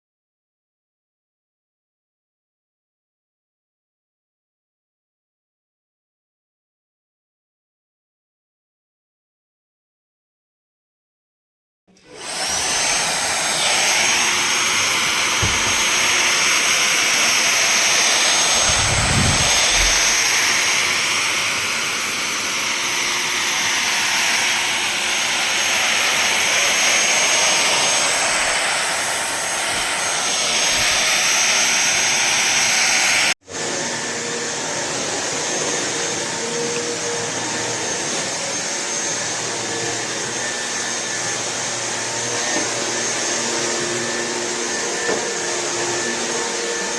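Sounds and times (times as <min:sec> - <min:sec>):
stick vacuum cleaner whine: 0:11.9 - 0:46.9.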